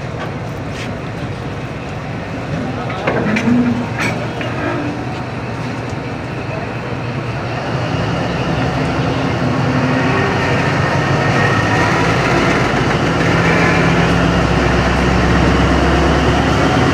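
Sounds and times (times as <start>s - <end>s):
train rumbling by: 0.0s - 16.9s.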